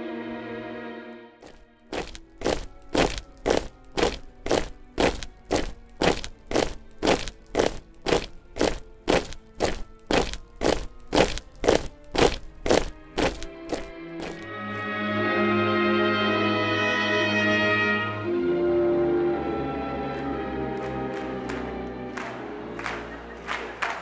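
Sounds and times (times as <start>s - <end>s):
boots marching in step: 1.4s - 14.8s.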